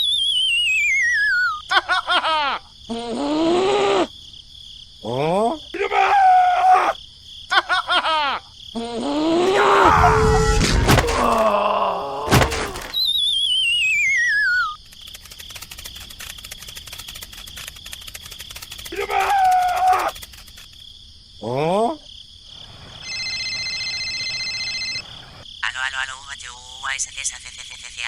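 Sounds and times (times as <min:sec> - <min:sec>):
falling warbling whistle: 0:00.0 - 0:01.6, 0:12.9 - 0:14.8
rapid fine ticking: 0:14.8 - 0:20.7.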